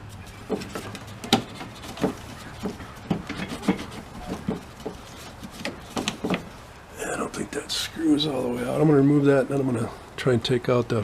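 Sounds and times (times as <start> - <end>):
clicks and knocks on plastic trim: 0.5 - 6.6.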